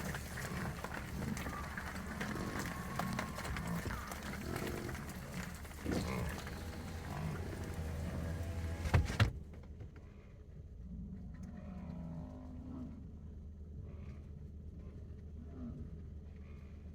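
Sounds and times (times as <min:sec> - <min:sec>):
bison bellowing and grunting: 0:00.0 - 0:09.0.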